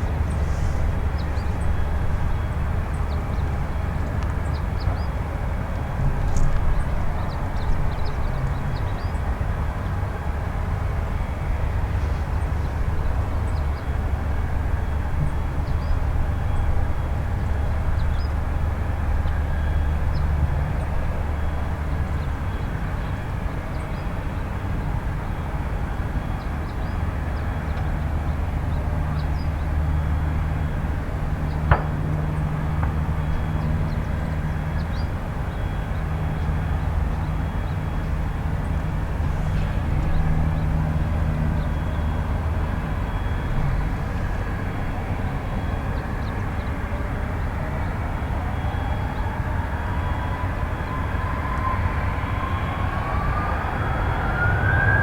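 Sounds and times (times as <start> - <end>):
jet engines running low: 0.0 - 55.0.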